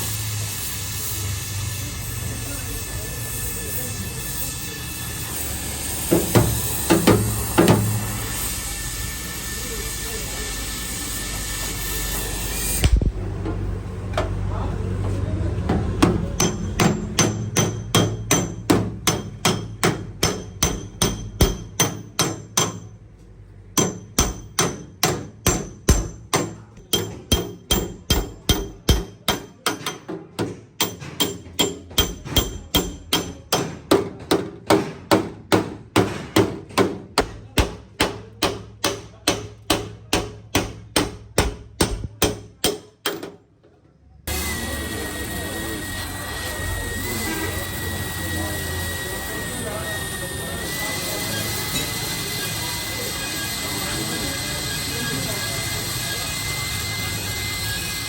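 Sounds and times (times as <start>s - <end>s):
hammer striking sheet metal: 5.2s - 9.0s, 16.0s - 23.0s, 23.7s - 43.4s.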